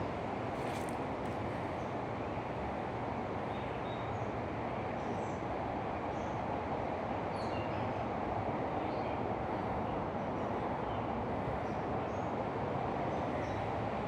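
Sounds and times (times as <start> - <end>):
steady rushing outdoor noise: 0.0 - 3.5, 7.9 - 14.0.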